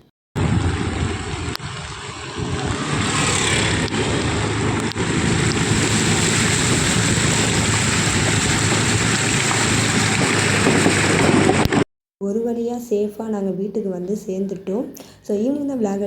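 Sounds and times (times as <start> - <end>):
heavy rain: 0.4 - 11.8
low rumble: 0.4 - 11.8
vehicle driving through flooded street: 0.4 - 11.8.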